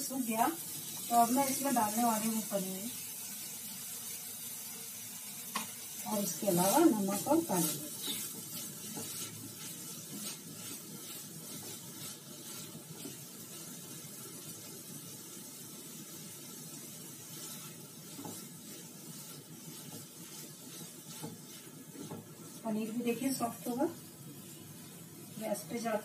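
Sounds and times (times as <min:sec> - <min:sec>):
food sizzling in a pan: 0:00.0 - 0:26.0
spatula scraping a pan: 0:05.5 - 0:26.0.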